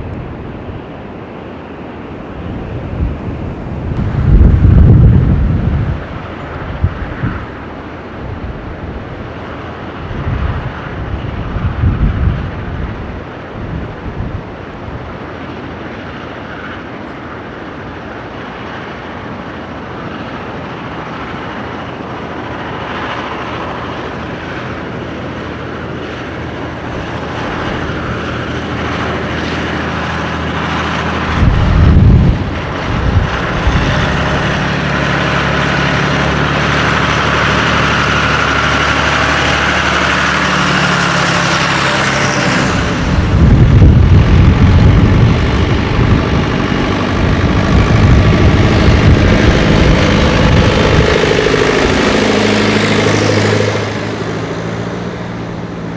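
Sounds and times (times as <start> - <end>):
tractor engines driving past: 0.0 - 55.9
loud low rumbles: 2.4 - 7.6, 25.4 - 55.9.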